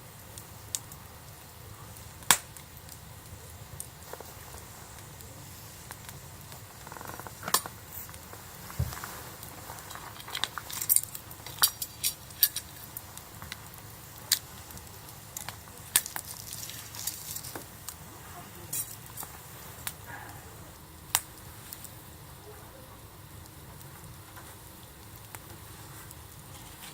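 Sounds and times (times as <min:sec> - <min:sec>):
campfire crackling and popping: 0:00.0 - 0:26.9
faint steady hiss: 0:00.0 - 0:26.9.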